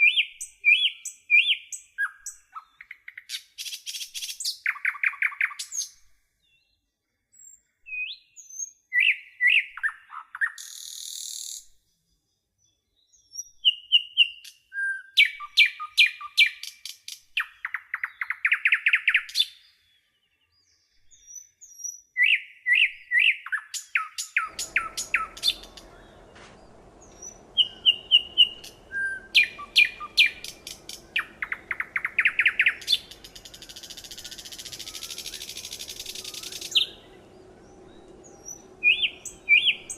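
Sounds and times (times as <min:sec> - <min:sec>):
songbird chirping and trilling: 0:00.0 - 0:39.9
faint background hiss: 0:24.4 - 0:39.9.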